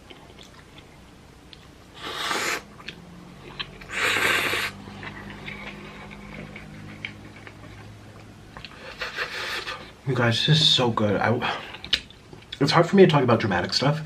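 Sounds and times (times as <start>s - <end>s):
slurping noodles: 2.0s - 2.7s, 3.8s - 6.6s.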